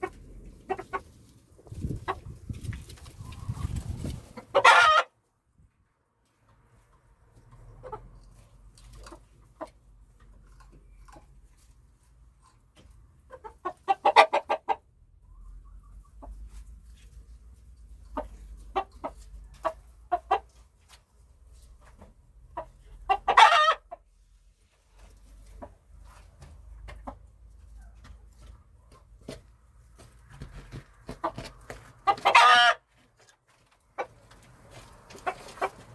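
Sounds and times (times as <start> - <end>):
chickens clucking: 0.0 - 5.1, 6.8 - 24.2, 24.9 - 35.9
loud drawn-out chicken calls: 3.2 - 5.2, 23.1 - 24.0, 31.2 - 32.9.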